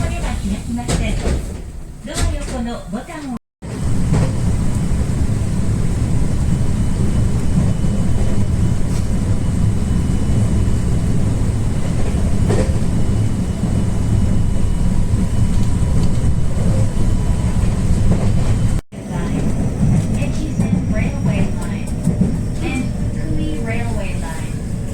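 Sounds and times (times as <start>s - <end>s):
train wheels rumbling on rail: 0.0s - 24.9s.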